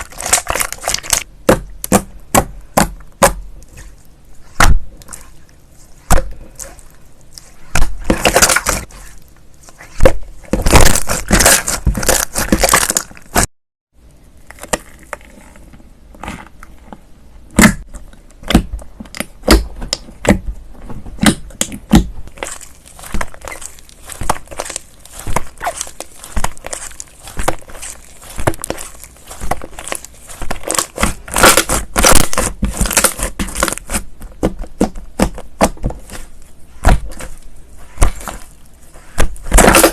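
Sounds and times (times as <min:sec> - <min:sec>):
slime crackling and popping: 0:00.0 - 0:03.9, 0:04.5 - 0:09.0, 0:09.8 - 0:13.5, 0:21.2 - 0:39.9.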